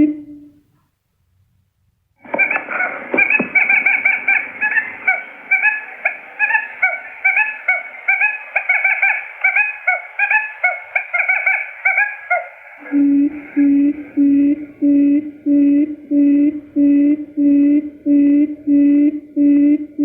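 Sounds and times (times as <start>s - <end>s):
quail chirps: 2.2s - 14.3s.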